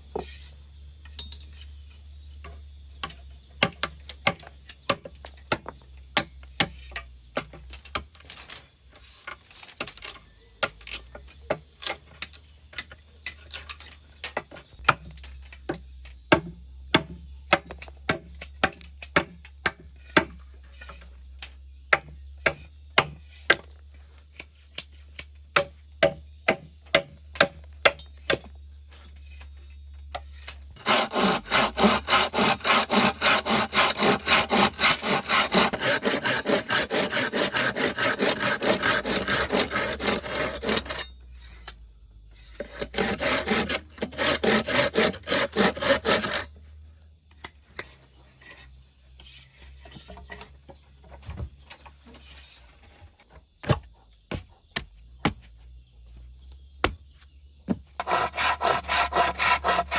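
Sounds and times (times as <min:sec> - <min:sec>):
handsaw cutting wood: 0:30.8 - 0:41.1, 0:42.6 - 0:46.5, 0:58.0 - 0:59.9.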